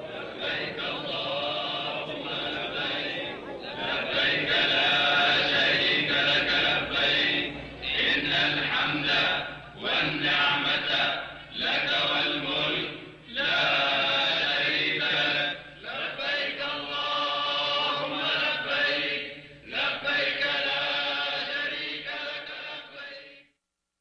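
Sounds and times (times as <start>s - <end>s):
voices chanting together: 0.0s - 23.4s.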